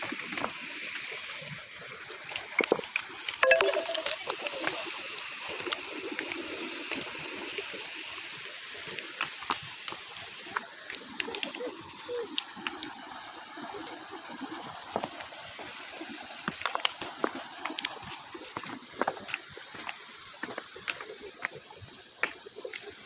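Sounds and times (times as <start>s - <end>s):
small splashes and clicks: 8.9s - 13.0s, 14.9s - 23.0s.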